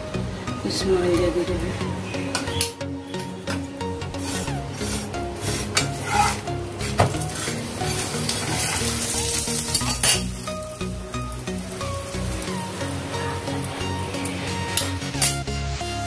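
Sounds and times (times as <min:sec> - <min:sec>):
metal spatula scraping pan: 0:03.5 - 0:10.4
flatbread sizzling in oil: 0:04.0 - 0:16.0.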